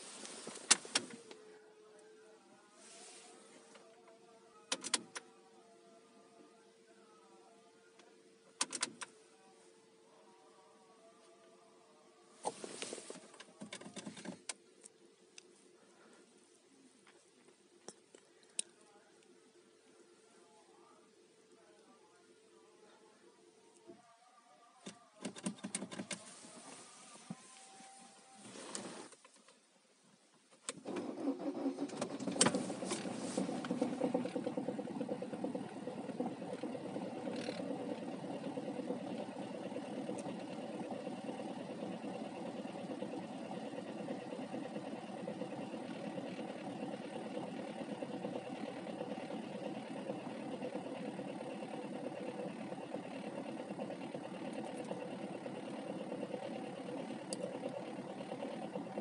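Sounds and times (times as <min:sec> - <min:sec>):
diesel engine starting and idling: 0:30.7 - 0:59.0.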